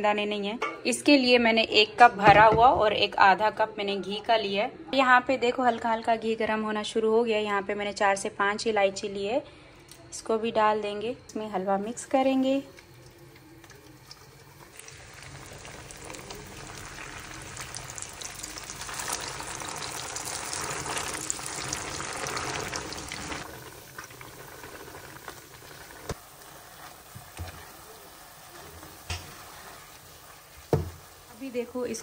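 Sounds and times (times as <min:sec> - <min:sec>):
metal ladle knocking on pan: 0:00.6 - 0:00.9, 0:02.2 - 0:03.0, 0:30.7 - 0:31.0
paste sizzling in hot oil: 0:13.9 - 0:32.0.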